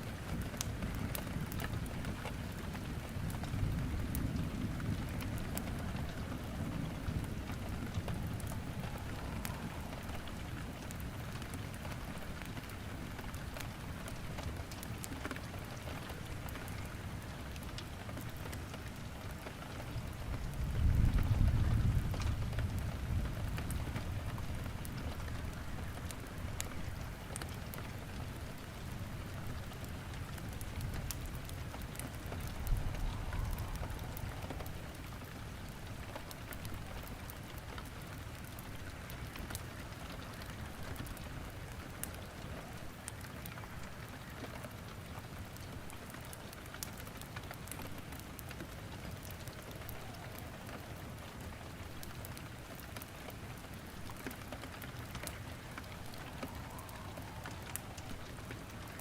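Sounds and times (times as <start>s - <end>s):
firewood crackling in a fireplace: 0.0s - 59.0s
steady rain falling: 0.0s - 59.0s
low rumble: 32.4s - 35.8s.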